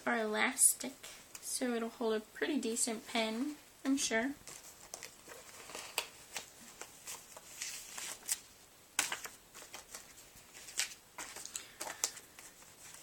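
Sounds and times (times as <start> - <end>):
paper pages rustling: 4.4 - 13.0.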